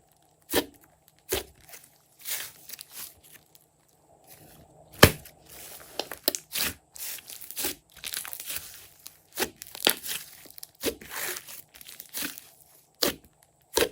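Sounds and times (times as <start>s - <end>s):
slime kneaded by hand: 0.0s - 3.6s, 4.3s - 13.9s.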